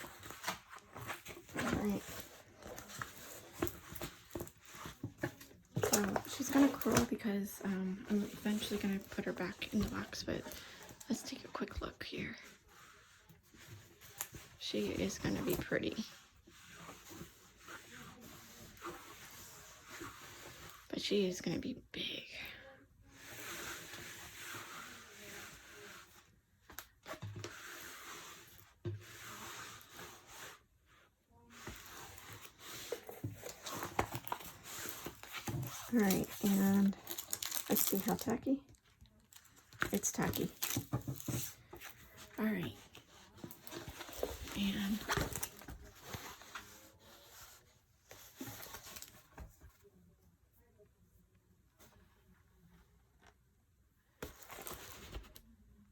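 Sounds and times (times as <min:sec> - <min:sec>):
plastic film rustling and crinkling: 0:00.0 - 0:11.8, 0:31.7 - 0:47.3.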